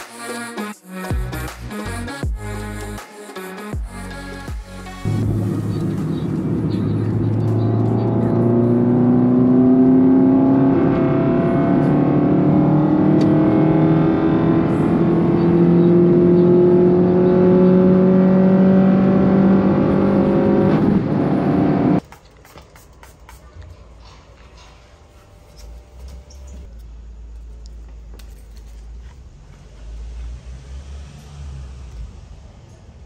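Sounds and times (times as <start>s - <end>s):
car engine accelerating: 4.9s - 22.0s, 29.0s - 33.0s.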